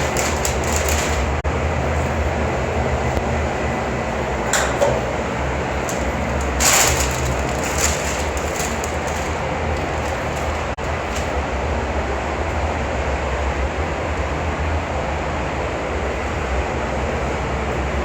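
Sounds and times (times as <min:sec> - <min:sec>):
truck engine rumbling: 0:00.0 - 0:11.6.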